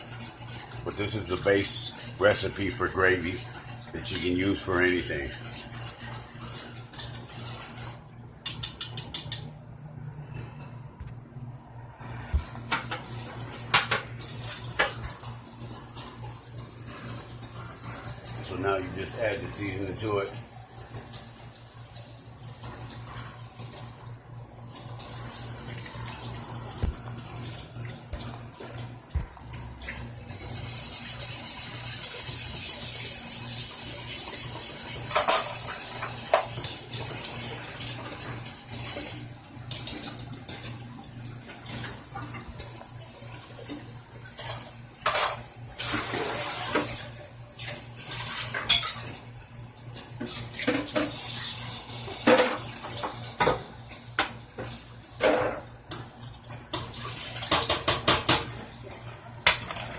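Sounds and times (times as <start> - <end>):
gravy cooking hiss: 0.8 - 6.3, 16.6 - 20.5
utensil stirring in metal pot: 0.9 - 9.3.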